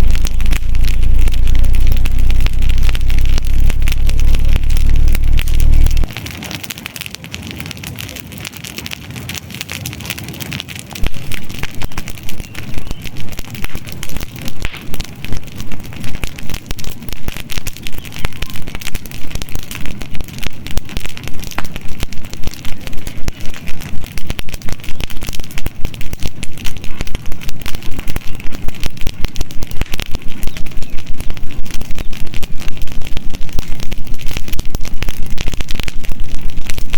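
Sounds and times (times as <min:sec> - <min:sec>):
campfire crackling and popping: 0:00.0 - 0:36.9.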